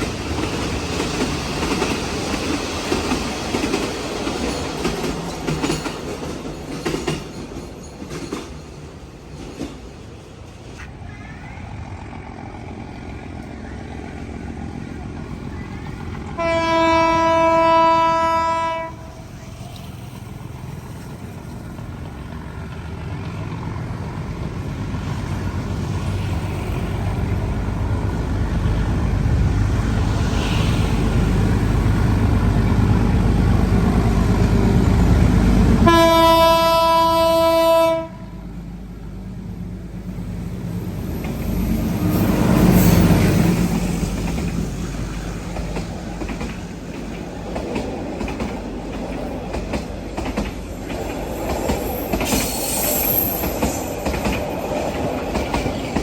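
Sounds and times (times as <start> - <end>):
train rumbling: 0.0 - 56.0
train horn blasts: 16.3 - 19.3, 35.8 - 38.5.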